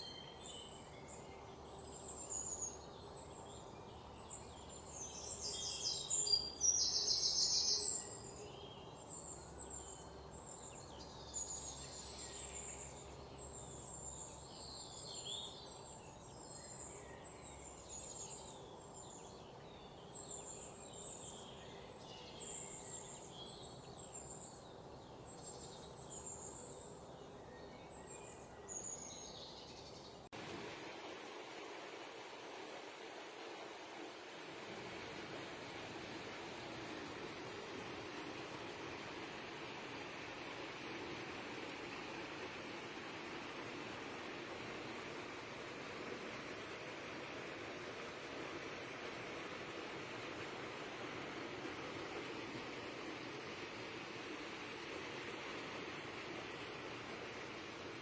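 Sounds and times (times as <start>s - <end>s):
steady background hiss: 0.0s - 58.0s.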